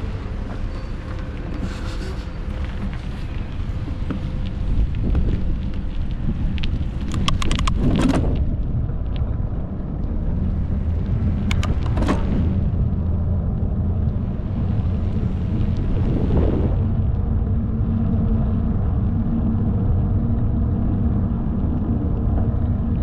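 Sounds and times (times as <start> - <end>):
wind rumble on microphone: 0.0 - 23.0
sharp clicks and rattles: 5.1 - 9.3, 10.4 - 12.6.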